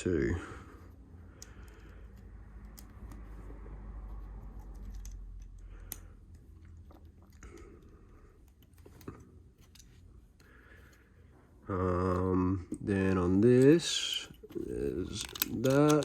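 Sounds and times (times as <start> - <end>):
hands rummaging plastic bricks: 13.8 - 16.0.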